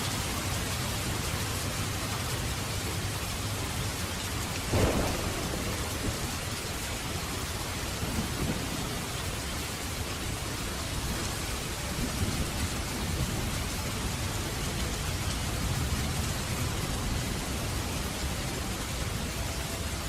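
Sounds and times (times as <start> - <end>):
rain hissing: 0.0 - 20.0
thunder rumbling: 3.6 - 19.3
sharp thunderclap: 4.6 - 9.4.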